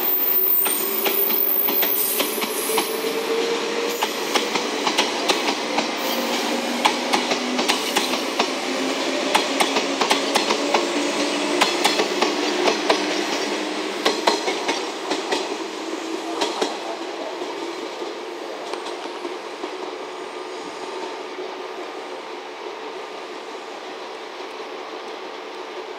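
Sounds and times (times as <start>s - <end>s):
electric train running: 0.0s - 18.1s
train wheels clacking over track: 0.0s - 20.1s.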